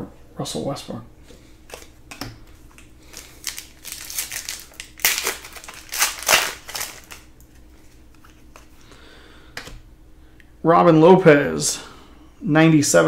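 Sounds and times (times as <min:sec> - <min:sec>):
card packs crinkling and rustling: 0:01.7 - 0:08.8.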